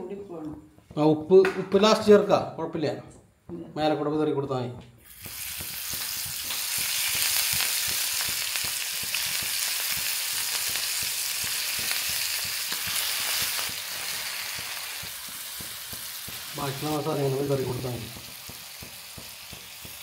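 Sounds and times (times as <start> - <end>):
prawns sizzling in hot oil: 5.0 - 20.0.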